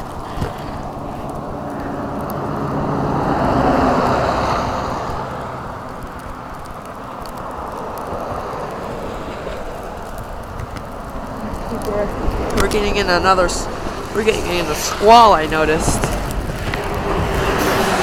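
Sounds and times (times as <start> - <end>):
vehicle driving past: 1.3 - 6.4.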